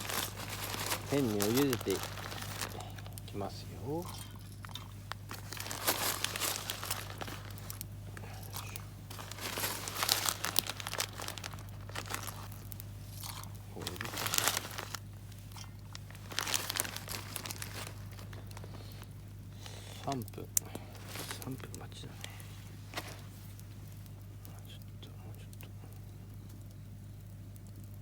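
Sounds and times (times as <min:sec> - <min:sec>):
plastic packet crinkling: 0:00.0 - 0:19.2, 0:20.0 - 0:23.3.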